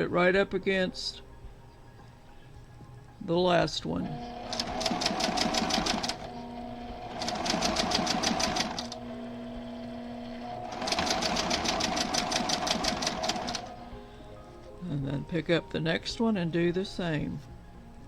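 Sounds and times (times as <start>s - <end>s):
sewing machine stitching: 4.0s - 13.9s
sewing machine motor humming: 4.0s - 14.1s.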